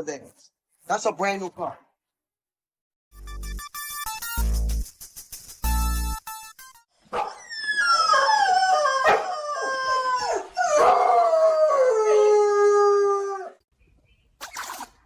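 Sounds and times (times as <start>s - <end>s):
dog howling: 7.2s - 13.6s.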